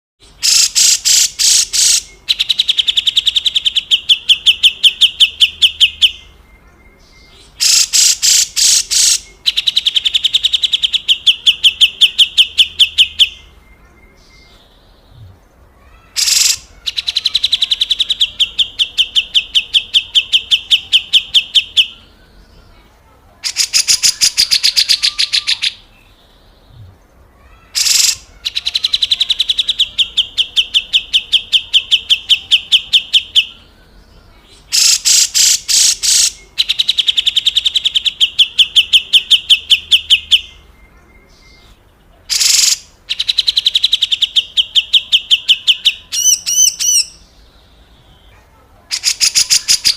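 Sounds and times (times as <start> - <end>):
bird giving buzzy rasping calls: 0.3 - 2.1, 7.5 - 9.3, 15.9 - 19.6, 27.7 - 28.3, 34.7 - 36.4.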